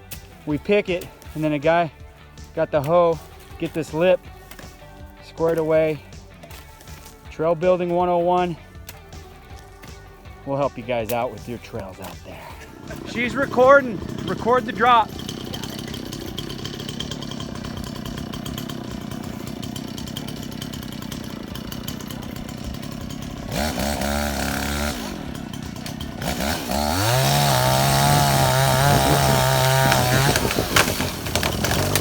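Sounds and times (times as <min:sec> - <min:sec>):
dirt bike engine revving: 0:10.6 - 0:32.0.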